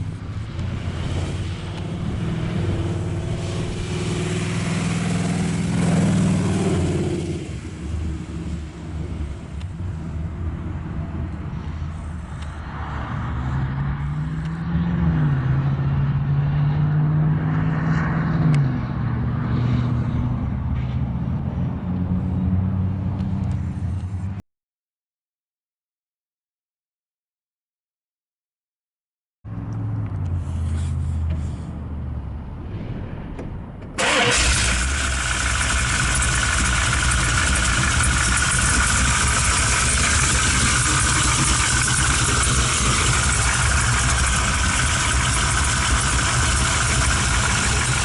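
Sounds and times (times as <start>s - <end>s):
engine revving: 0.6s - 9.1s, 13.2s - 20.2s, 34.0s - 48.0s.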